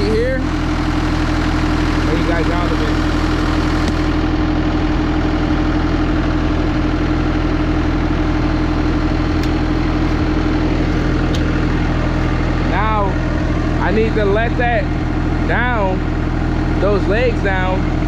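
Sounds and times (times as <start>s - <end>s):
tractor diesel engine idling: 0.0s - 18.0s.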